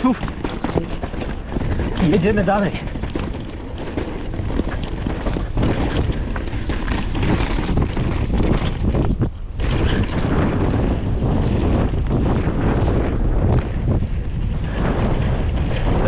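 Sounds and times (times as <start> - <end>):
bike tyres and frame clattering: 0.0 - 16.0
wind buffeting microphone: 0.0 - 16.0.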